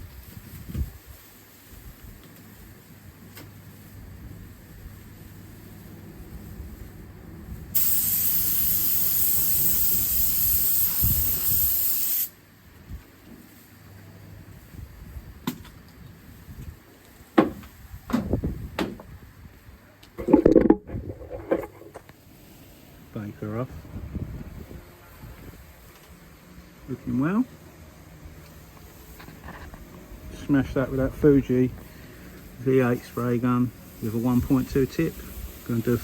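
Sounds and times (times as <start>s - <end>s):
paint spray gun hissing: 7.8s - 12.4s.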